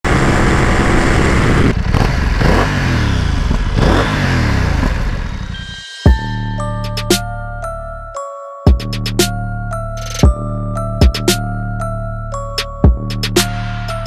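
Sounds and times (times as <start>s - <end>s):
motorcycle engine revving: 0.0s - 5.7s
music with loud hit: 5.7s - 7.3s.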